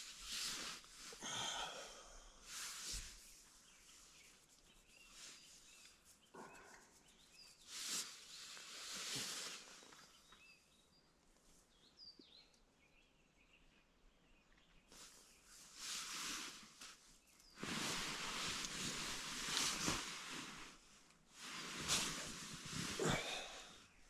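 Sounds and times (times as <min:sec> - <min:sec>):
faint bird chirps: 0:03.2 - 0:20.8
soft swells of noise: 0:15.0 - 0:23.9.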